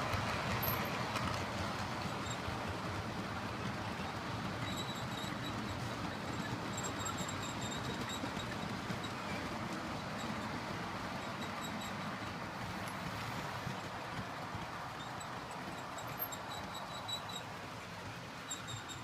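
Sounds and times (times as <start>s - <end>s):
train rumbling: 0.0s - 19.0s
faint high squeaks: 15.0s - 17.5s, 18.5s - 19.0s.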